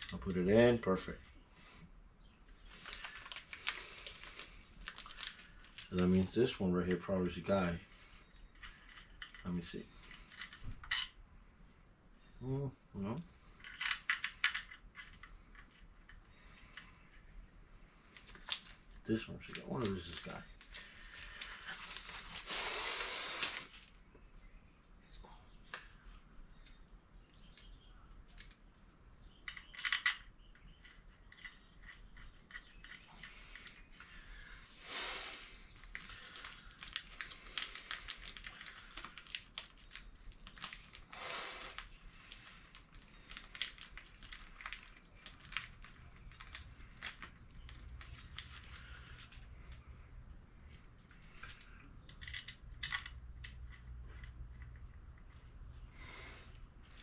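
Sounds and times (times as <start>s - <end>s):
metal tools clicking and clinking: 29.5s - 33.8s.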